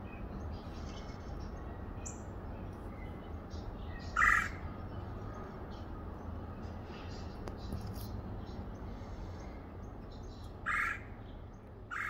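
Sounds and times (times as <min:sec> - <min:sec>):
loud harsh bird call: 0:04.0 - 0:04.6, 0:10.6 - 0:11.2.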